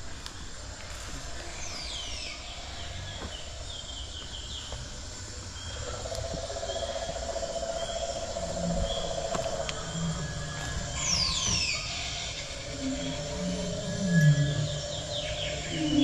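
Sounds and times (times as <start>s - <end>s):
birds chirping: 1.3s - 16.0s
low outdoor rumble: 4.8s - 16.0s.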